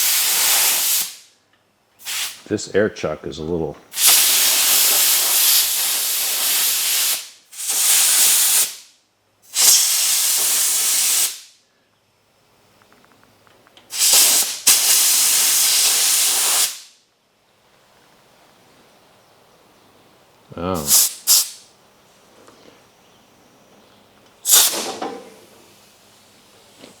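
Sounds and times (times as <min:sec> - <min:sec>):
compressed air hissing bursts: 0:00.0 - 0:01.3, 0:02.0 - 0:02.4, 0:03.9 - 0:11.6, 0:13.9 - 0:17.0, 0:20.8 - 0:21.6, 0:24.4 - 0:26.3.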